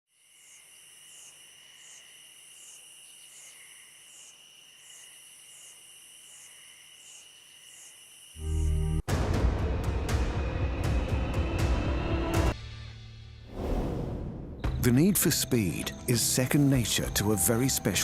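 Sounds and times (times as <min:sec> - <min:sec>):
insects chirping: 0:00.1 - 0:08.8.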